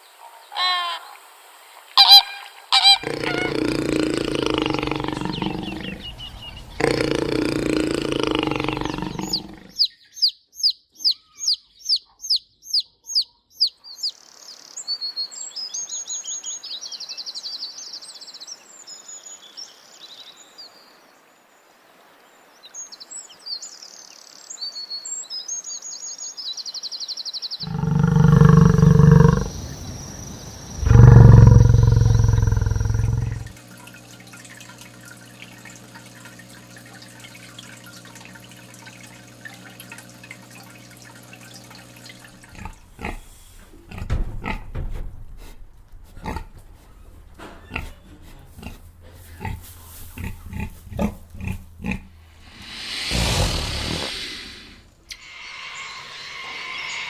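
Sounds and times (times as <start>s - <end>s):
loud low animal calls: 2.0s - 9.8s, 27.6s - 33.6s, 47.1s - 57.0s
birds chirping: 2.0s - 14.2s, 27.5s - 33.6s, 46.2s - 57.0s.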